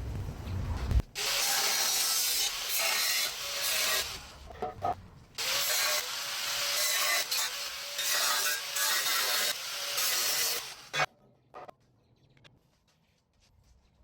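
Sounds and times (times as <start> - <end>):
angle grinder cutting metal pipe: 1.2 - 4.4, 5.4 - 11.1.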